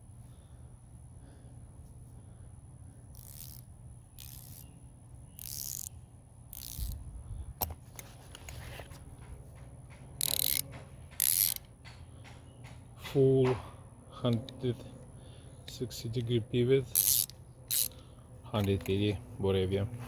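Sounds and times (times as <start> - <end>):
low steady hum: 0.0 - 20.0
wrenches scraping: 3.1 - 4.7, 5.4 - 7.0, 7.9 - 13.5, 15.7 - 19.2.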